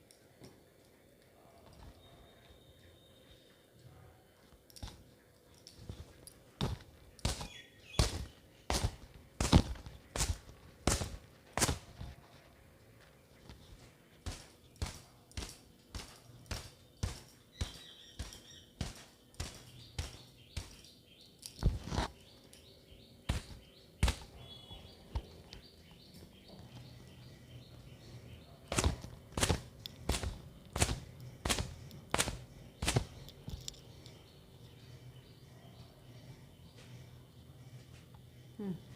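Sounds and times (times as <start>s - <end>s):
faint bird chirps: 1.4s - 4.5s, 16.7s - 28.8s.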